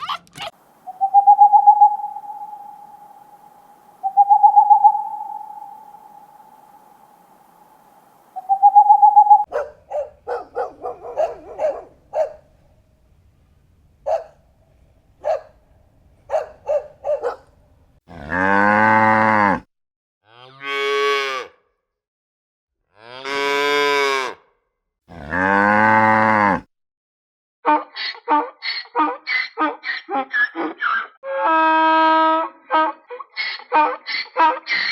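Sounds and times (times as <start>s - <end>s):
cows mooing: 18.1s - 19.6s, 25.1s - 26.6s.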